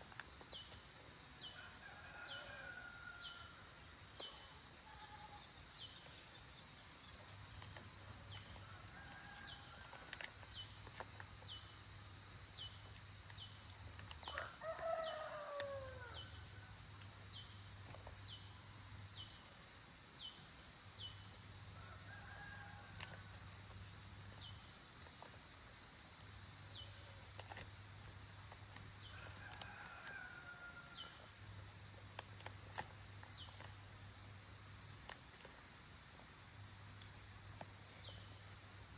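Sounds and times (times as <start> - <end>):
insect drone: 0.0 - 38.9
rooster crowing: 1.5 - 3.6, 14.3 - 16.6, 21.8 - 23.2, 29.1 - 31.1.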